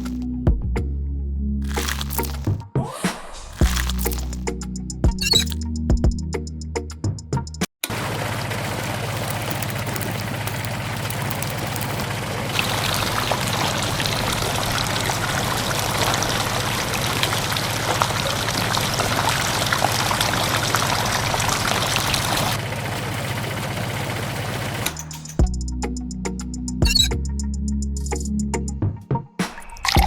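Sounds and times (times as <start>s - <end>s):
grainy material pouring: 1.7s - 2.5s, 3.6s - 4.3s, 8.0s - 22.6s
small motor humming: 7.9s - 16.6s.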